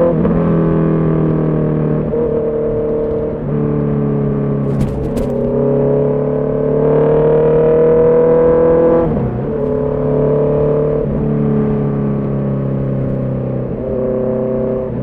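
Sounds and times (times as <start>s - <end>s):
motorcycle engine accelerating: 4.4s - 8.4s.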